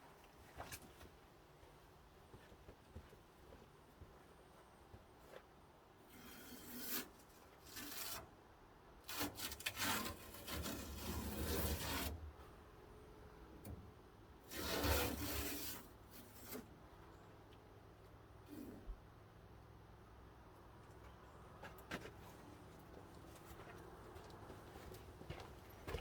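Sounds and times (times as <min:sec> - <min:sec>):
rubbing and scraping noise: 0:09.1 - 0:12.2, 0:14.5 - 0:16.7.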